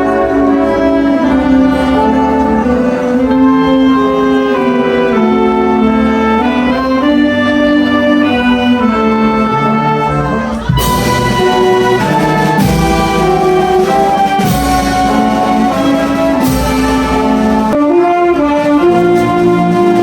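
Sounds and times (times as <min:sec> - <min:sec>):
wind band playing: 0:00.0 - 0:20.0
heavy drum strokes: 0:10.6 - 0:17.9.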